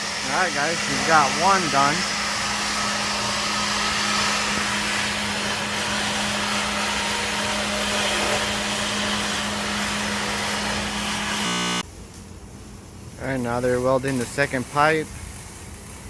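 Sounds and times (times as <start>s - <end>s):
low hum: 0.0s - 11.8s
rushing machine noise: 0.0s - 11.8s.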